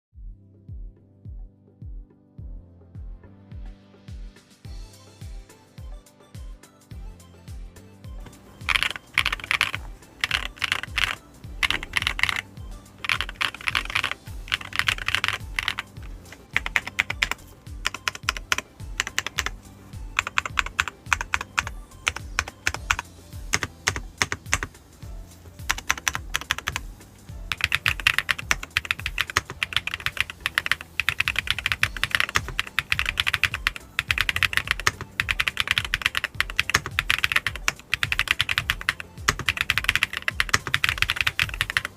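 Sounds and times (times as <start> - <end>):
mechanical keyboard typing: 8.6 - 24.8, 25.7 - 26.9, 27.5 - 41.9.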